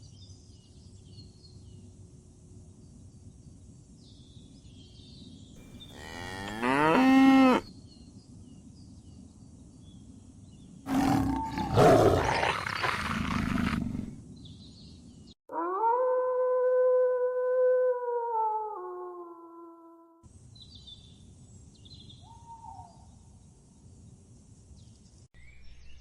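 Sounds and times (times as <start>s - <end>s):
steady held animal call: 5.6s - 7.7s, 10.9s - 14.1s
large animal calling: 5.7s - 7.7s, 10.9s - 14.1s.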